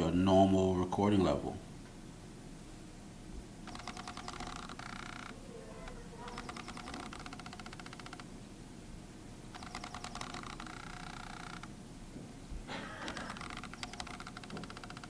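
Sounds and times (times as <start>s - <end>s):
lens focus motor ticking: 3.7s - 5.4s, 6.3s - 8.3s, 9.5s - 11.8s, 13.1s - 15.0s.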